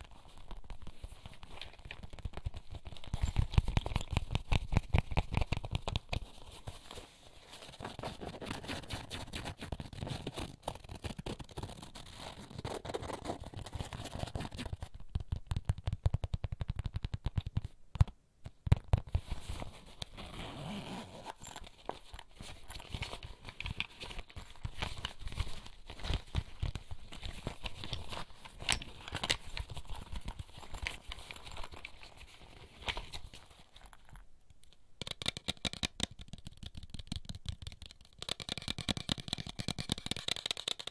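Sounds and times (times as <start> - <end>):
fingertips tapping on small items: 14.9 - 19.2, 33.8 - 40.9
rustling: 19.0 - 34.3.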